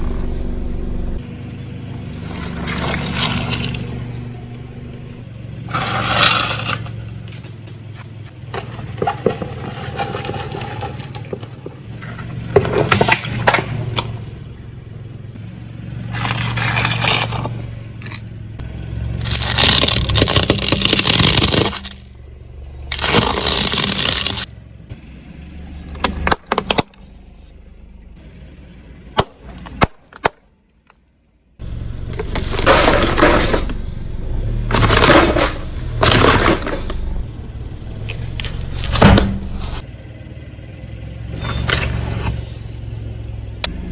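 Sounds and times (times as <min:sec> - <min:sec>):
car engine humming: 0:00.0 - 0:09.1, 0:11.6 - 0:29.3, 0:31.6 - 0:43.9
tyre crushing brittle objects: 0:16.1 - 0:18.2, 0:19.2 - 0:22.0, 0:22.9 - 0:24.5, 0:31.6 - 0:39.8.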